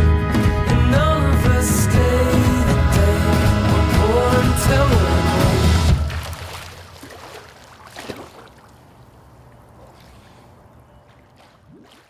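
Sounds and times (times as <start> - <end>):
song playing: 0.1 - 6.1
pool water splashing and lapping: 2.5 - 12.0.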